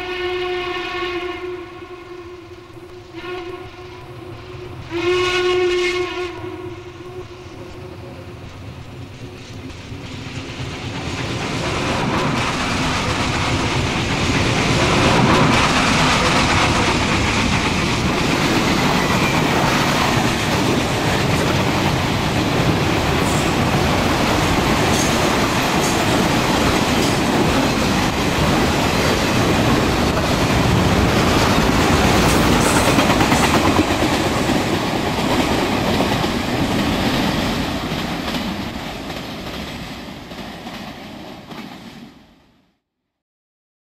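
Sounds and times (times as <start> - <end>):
model train rattling on track: 7.9 - 42.0.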